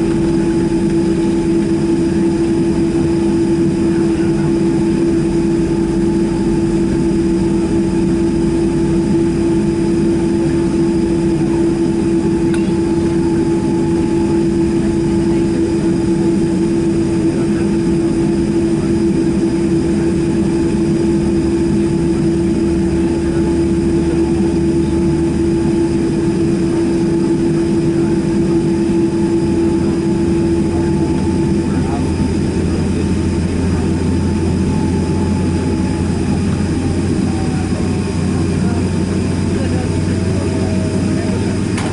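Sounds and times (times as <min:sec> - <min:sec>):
jet engines humming in cabin: 0:00.0 - 0:41.9.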